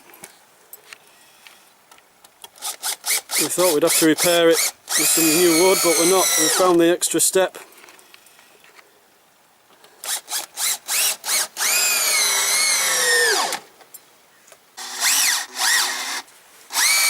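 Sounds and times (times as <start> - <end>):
electric drill whining: 2.6 - 6.8, 10.0 - 13.6, 14.8 - 17.0.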